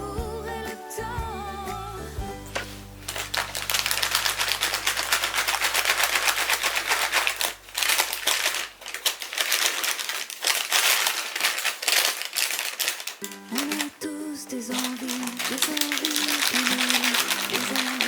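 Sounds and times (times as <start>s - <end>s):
faint background music: 0.0s - 6.0s.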